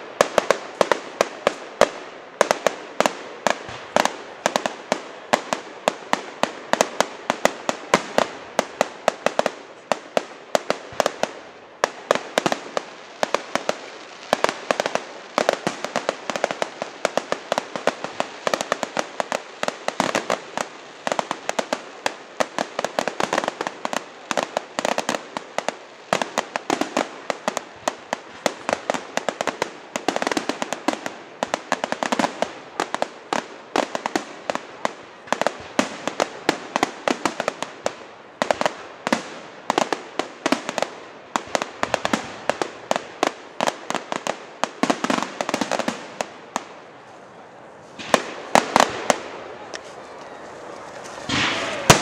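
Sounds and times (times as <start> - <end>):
fireworks cracking and popping: 0.0 - 52.0
loud firework bang: 51.2 - 52.0.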